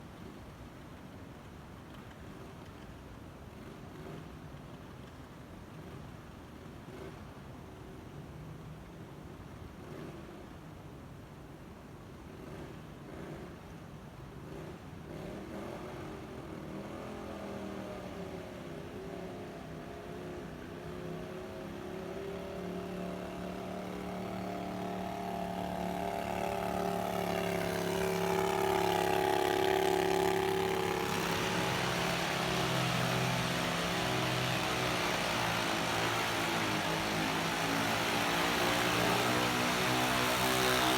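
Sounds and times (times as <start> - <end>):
broad rushing noise: 18.1 - 40.9
tractor engine running hard: 22.5 - 40.9.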